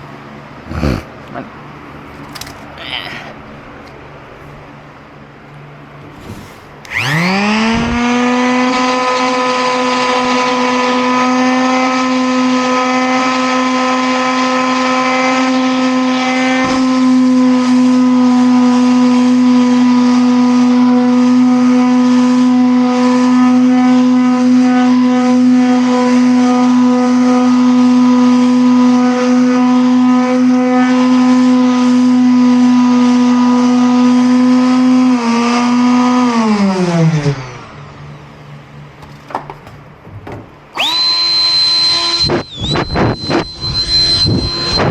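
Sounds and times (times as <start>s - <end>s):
electric motor humming: 6.1s - 17.5s, 39.0s - 44.9s.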